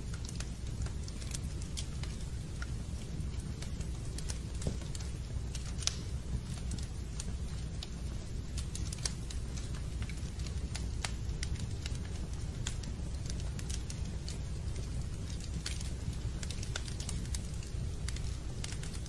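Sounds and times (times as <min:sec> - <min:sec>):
fireplace crackling: 0:00.0 - 0:19.0
wood popping and snapping: 0:03.6 - 0:07.4.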